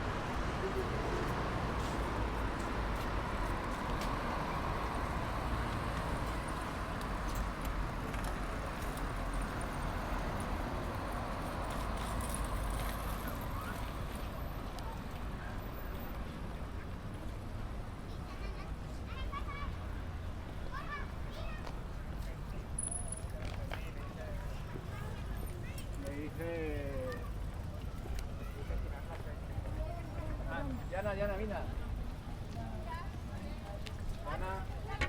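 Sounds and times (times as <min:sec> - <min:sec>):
low urban rumble: 0:00.0 - 0:35.0
footsteps: 0:01.2 - 0:04.2.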